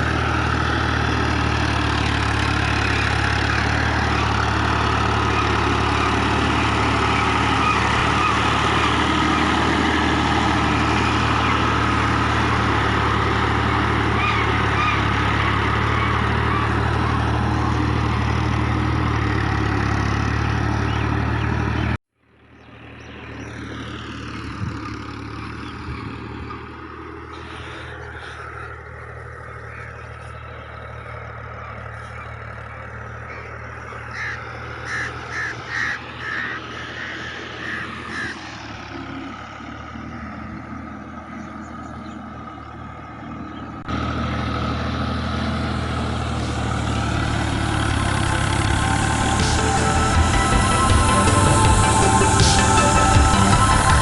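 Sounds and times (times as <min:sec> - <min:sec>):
outdoor ambience: 0:00.0 - 0:54.0
tractor diesel engine running: 0:00.0 - 0:54.0
crow cawing: 0:27.3 - 0:38.4.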